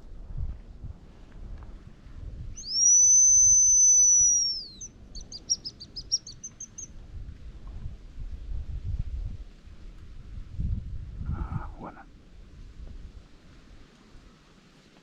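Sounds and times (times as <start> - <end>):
short high whistle notes: 2.6 - 4.8
high decoy whistle: 2.6 - 6.3.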